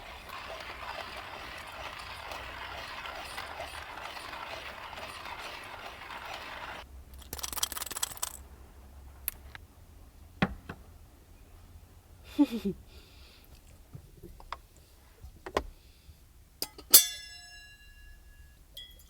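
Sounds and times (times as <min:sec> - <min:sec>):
rapid mechanical clicking: 0:00.0 - 0:08.4.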